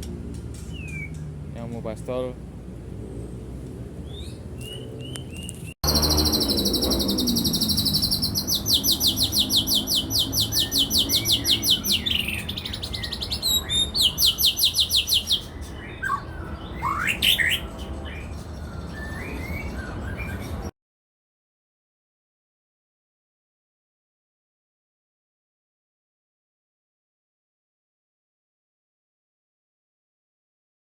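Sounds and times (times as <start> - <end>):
bird singing trills: 4.0 - 20.7
bird chirps and whistles: 4.1 - 20.5.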